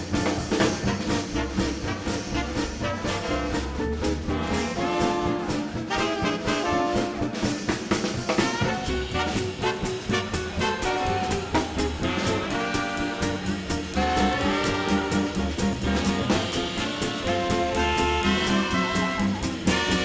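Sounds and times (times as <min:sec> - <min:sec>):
drums: 0:00.0 - 0:20.0
trombone: 0:00.0 - 0:20.0
trumpet: 0:00.0 - 0:20.0
upright bass: 0:00.0 - 0:20.0
saxophones: 0:08.3 - 0:20.0.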